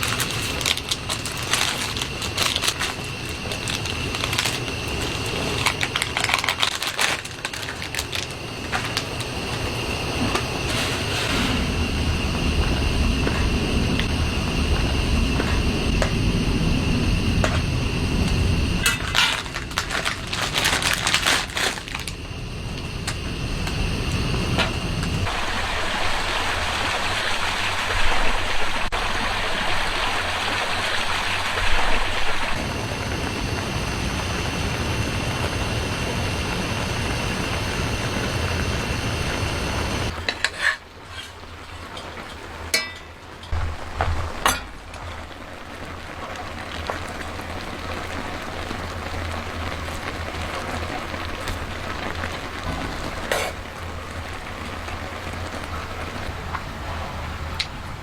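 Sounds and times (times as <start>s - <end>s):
steady rushing noise: 7.9s - 40.2s.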